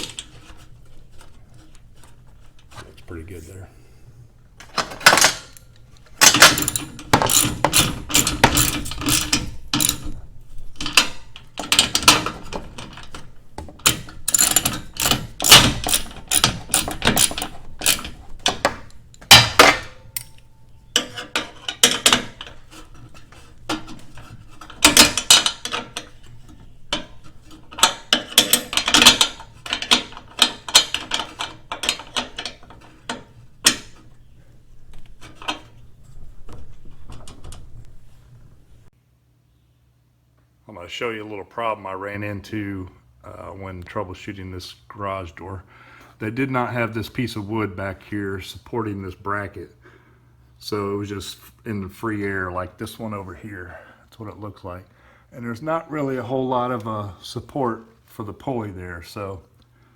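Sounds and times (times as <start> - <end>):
ratchet wrench clicking: 6.5 - 10.0, 13.9 - 18.2.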